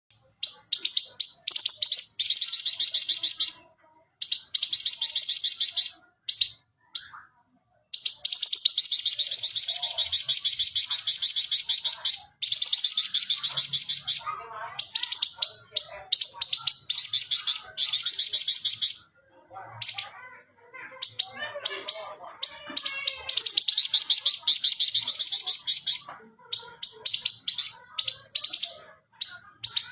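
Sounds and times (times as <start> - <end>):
songbird trilling: 8.0 - 19.1, 21.0 - 29.9.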